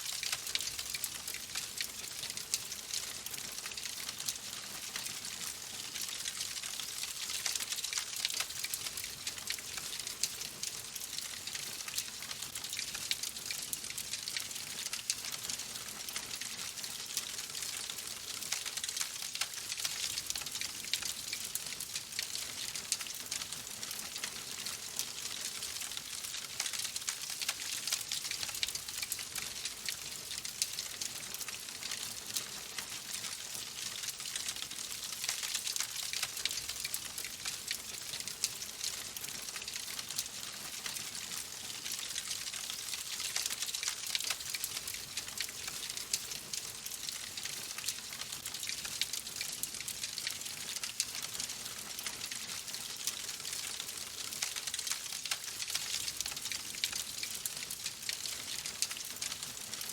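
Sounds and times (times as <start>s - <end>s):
fire crackling in fireplace: 0.1s - 10.4s, 11.0s - 59.9s.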